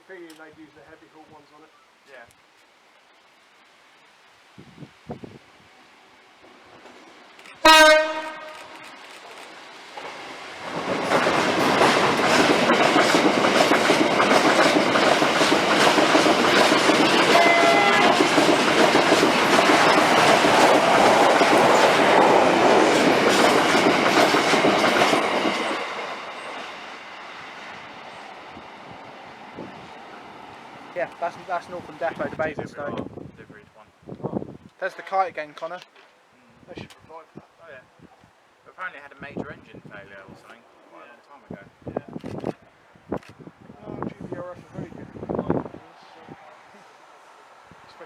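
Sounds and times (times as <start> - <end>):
train wheels clattering over rails: 6.4 - 32.3
train horn blast: 7.6 - 8.8, 17.0 - 18.3.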